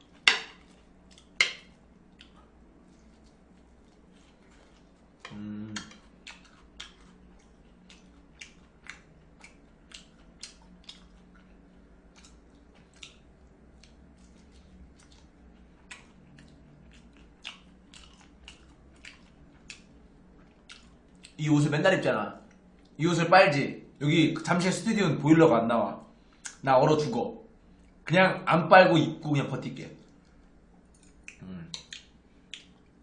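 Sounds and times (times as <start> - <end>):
person chewing crispy food: 0.0 - 21.4, 30.0 - 33.0.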